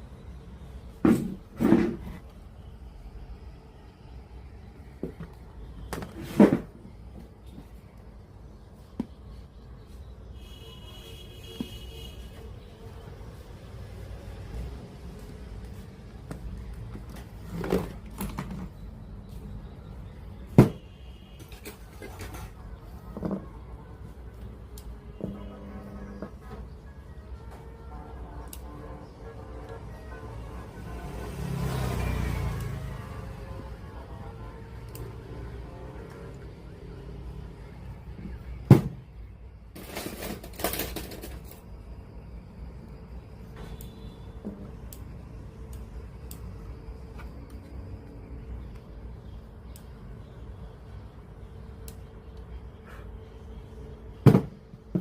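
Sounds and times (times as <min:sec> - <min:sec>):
clattering and rattling: 0:39.8 - 0:41.6.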